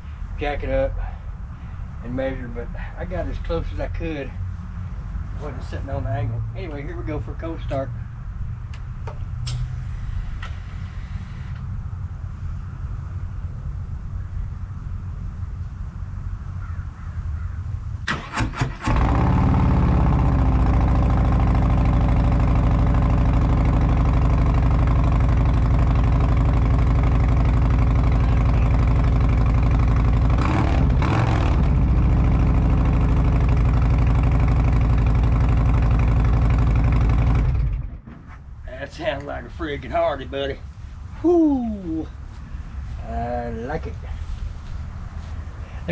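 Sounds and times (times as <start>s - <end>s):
motorcycle engine idling: 18.9s - 38.1s.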